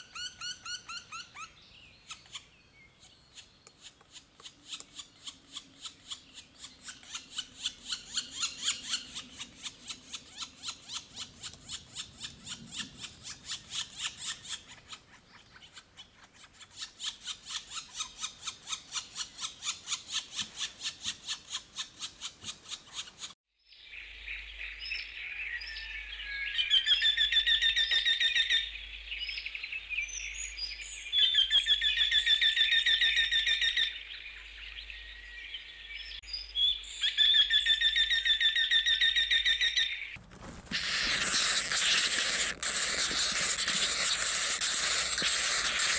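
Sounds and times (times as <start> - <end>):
songbird singing trilled phrases: 0.0 - 12.1, 23.6 - 40.2.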